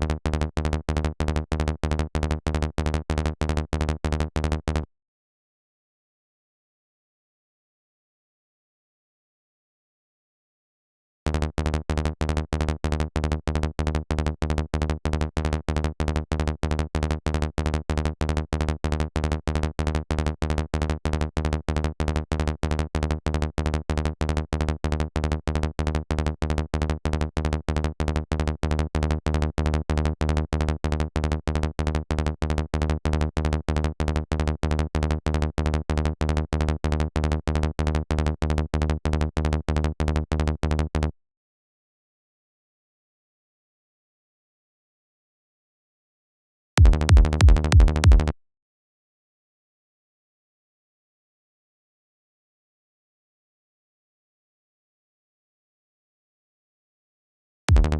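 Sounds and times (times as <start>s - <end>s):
electronic kick drum and bass loop: 46.8s - 48.3s.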